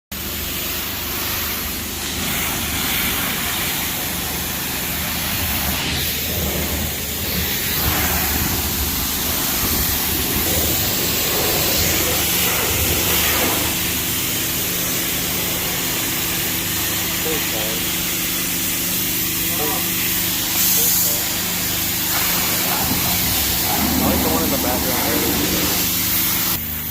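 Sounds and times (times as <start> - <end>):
tyre and wind hiss: 0.2 - 13.9
low engine drone: 0.2 - 26.9.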